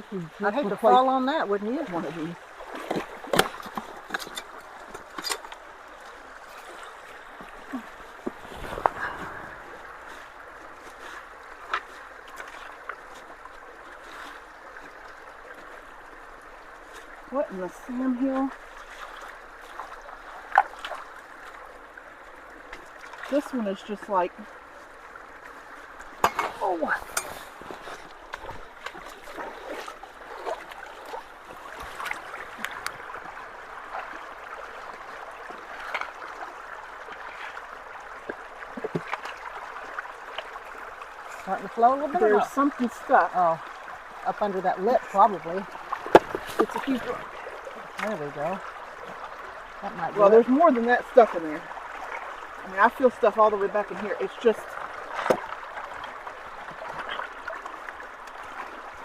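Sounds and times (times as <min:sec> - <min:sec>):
sharp water splashes: 0:00.0 - 0:14.8, 0:16.8 - 0:22.0, 0:25.9 - 0:59.0
stream water running: 0:00.0 - 0:59.0.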